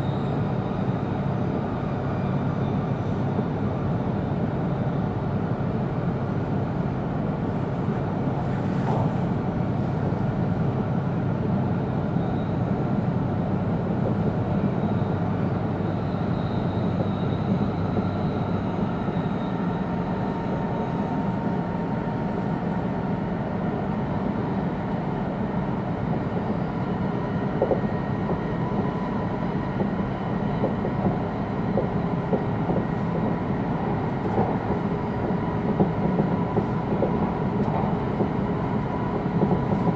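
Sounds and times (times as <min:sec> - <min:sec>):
train rumble inside carriage: 0:00.0 - 0:39.9.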